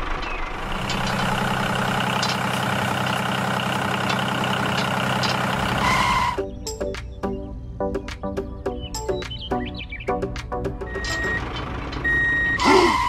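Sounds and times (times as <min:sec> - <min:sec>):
tractor engine idling: 0:00.0 - 0:06.4, 0:10.8 - 0:13.0.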